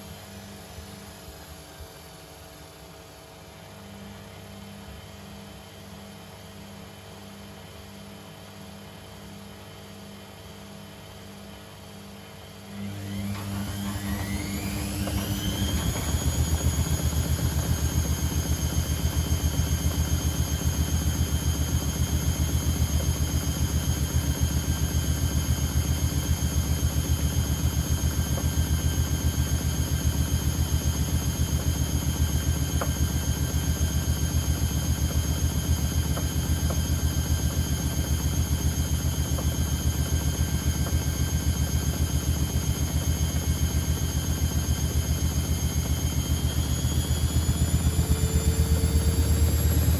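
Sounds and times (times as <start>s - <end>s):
washing machine spinning: 12.6s - 49.9s.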